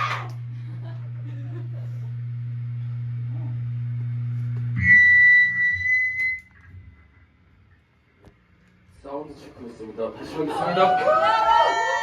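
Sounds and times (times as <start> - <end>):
feedback whistle: 4.8 - 6.8.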